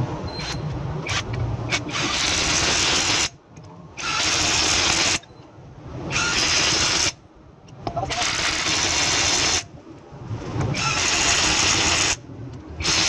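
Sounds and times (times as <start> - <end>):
power tool running: 0.4 - 3.3, 10.8 - 12.2, 12.8 - 13.0.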